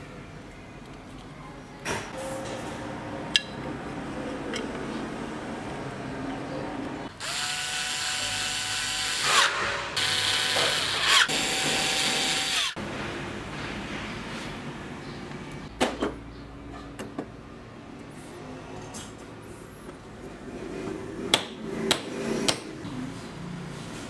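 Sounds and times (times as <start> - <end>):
electric power tool motor whining: 7.2 - 12.8.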